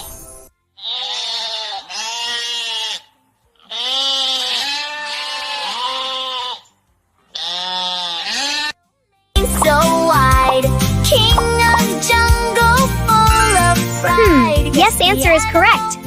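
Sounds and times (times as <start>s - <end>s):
animal crying: 0.8s - 6.7s, 7.3s - 8.8s, 13.3s - 14.7s.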